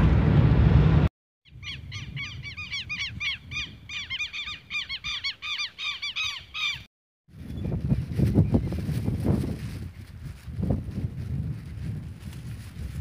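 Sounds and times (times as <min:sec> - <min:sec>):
low rumble: 0:00.0 - 0:01.1
bird calling with harsh chirps: 0:01.5 - 0:06.9.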